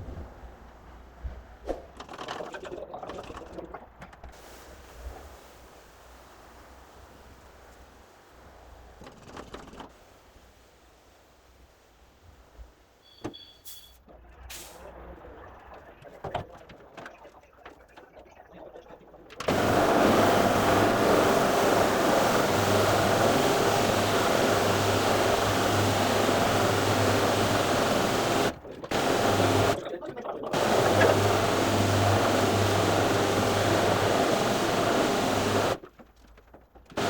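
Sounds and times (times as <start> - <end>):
carpet vacuum machine humming: 19.5 - 29.8, 30.5 - 35.8.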